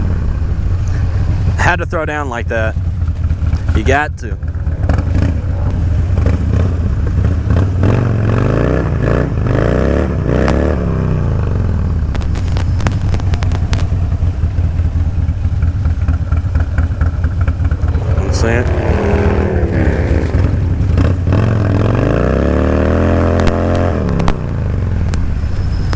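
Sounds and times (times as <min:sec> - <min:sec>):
motorcycle engine running: 0:00.0 - 0:25.9
engine pitch sweeping up and down: 0:11.4 - 0:25.2
sharp clicks: 0:12.2 - 0:14.6.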